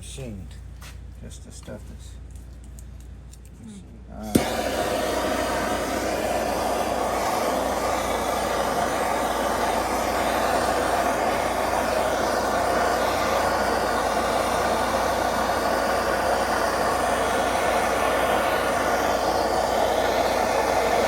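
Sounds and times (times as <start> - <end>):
heating tool roaring: 4.2 - 21.0.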